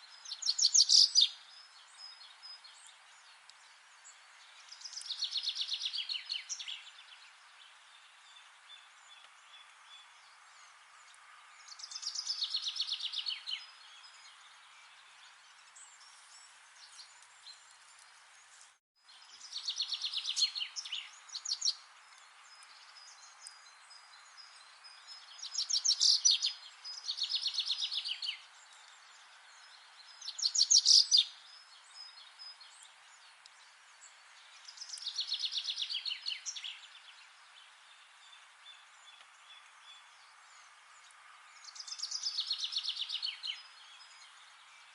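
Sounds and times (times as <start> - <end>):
faint forest hiss: 0.0 - 44.9
songbird trilling: 0.3 - 1.4.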